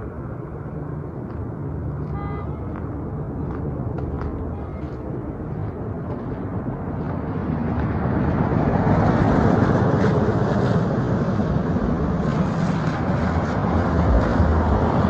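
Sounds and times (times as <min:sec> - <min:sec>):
vehicle passing close by: 0:07.1 - 0:15.0.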